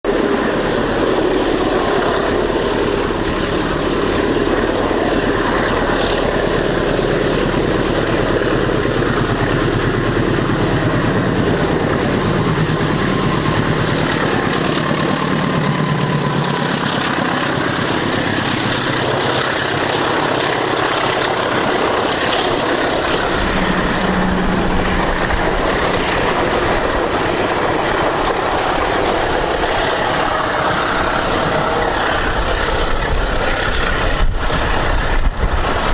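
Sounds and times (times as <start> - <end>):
train wheels clattering on rails: 0.8 - 35.9.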